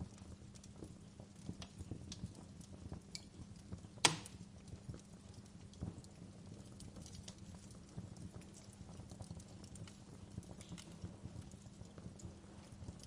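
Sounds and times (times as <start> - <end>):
fireplace fire crackling: 0.0 - 13.0.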